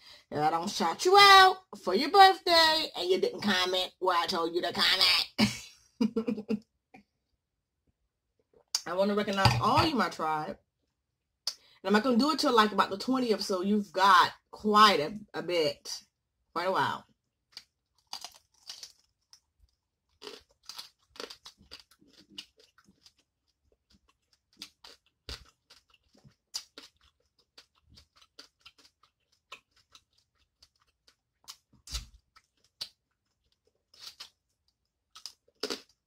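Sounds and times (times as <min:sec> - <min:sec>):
small crunches: 0:17.5 - 0:23.2
person chewing: 0:17.5 - 0:36.0.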